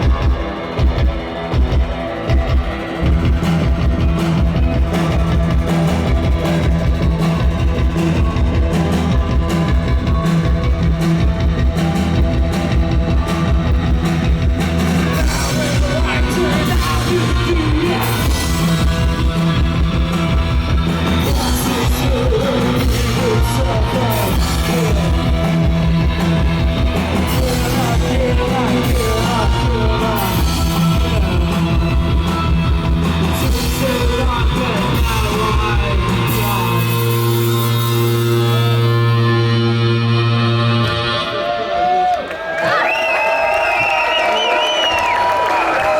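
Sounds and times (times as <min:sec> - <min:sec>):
post-punk band playing live: 0:00.0 - 0:45.9
person singing: 0:14.9 - 0:41.3.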